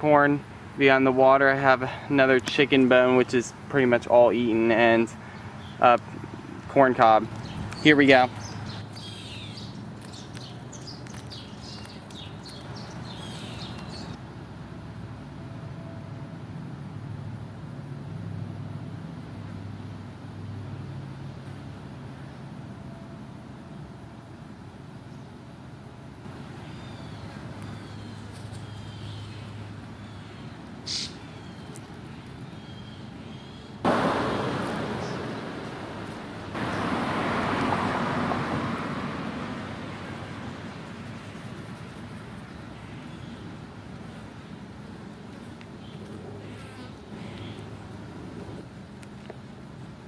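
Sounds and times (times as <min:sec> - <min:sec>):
road traffic: 0:00.0 - 0:50.0
vehicle low hum: 0:00.0 - 0:50.0
small birds chirping: 0:05.2 - 0:06.0, 0:07.2 - 0:14.2, 0:26.3 - 0:33.8, 0:34.9 - 0:35.4, 0:40.6 - 0:47.8
steady low rumble: 0:33.8 - 0:46.4.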